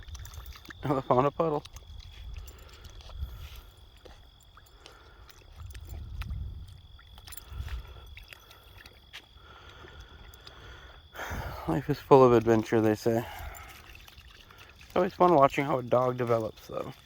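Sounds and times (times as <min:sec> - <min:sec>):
puppy splashing in puddle: 0:00.0 - 0:17.0
wind rumble on microphone: 0:01.6 - 0:04.2, 0:05.5 - 0:08.2.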